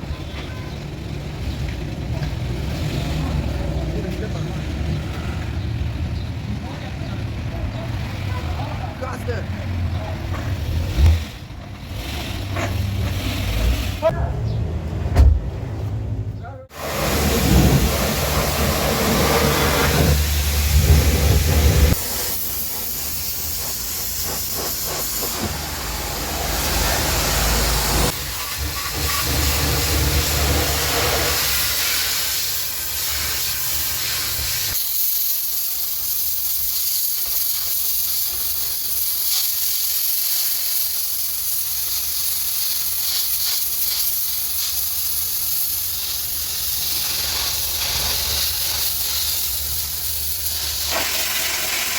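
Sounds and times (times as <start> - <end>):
pressure washer spraying: 10.6 - 14.1, 16.7 - 51.9.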